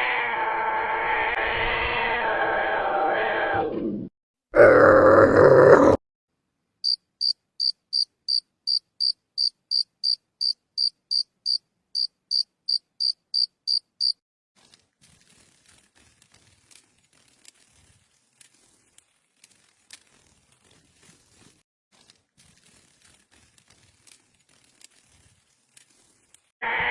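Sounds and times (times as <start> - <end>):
loud animal grunt: 4.5 - 6.0
cricket chirping: 6.8 - 14.2.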